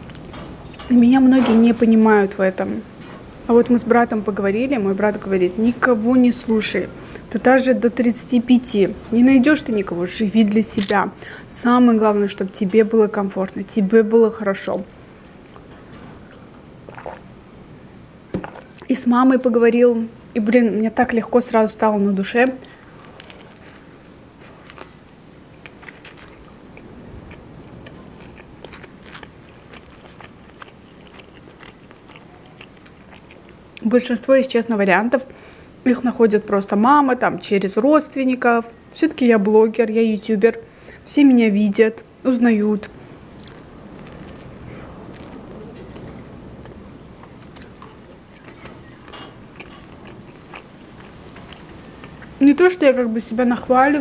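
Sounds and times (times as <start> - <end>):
background hiss: 0.0 - 54.0
soft crunches of chewing: 15.2 - 17.3, 22.6 - 33.8, 43.1 - 52.4.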